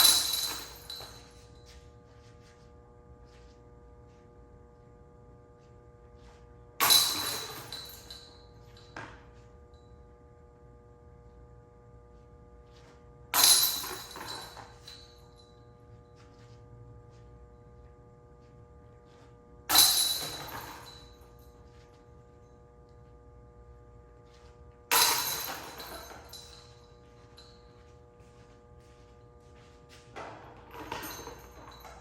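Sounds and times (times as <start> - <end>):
disc hitting metal chains: 0.0 - 1.4, 6.8 - 8.5, 13.4 - 15.1, 19.7 - 21.2, 24.9 - 26.8, 30.2 - 32.0
steady hum: 0.0 - 32.0.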